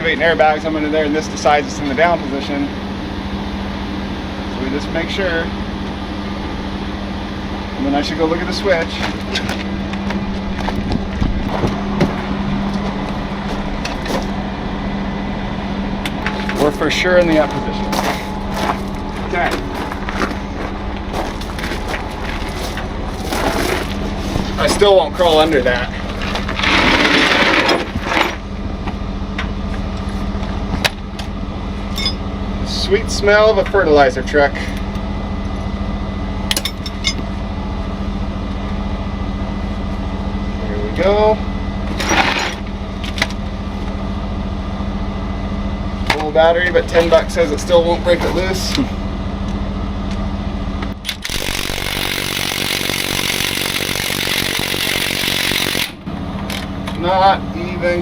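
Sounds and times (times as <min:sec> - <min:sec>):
truck diesel engine idling: 0:00.0 - 0:26.6
impact wrench hammering: 0:51.0 - 0:56.6
sharp metallic clicks: 0:51.0 - 0:56.7.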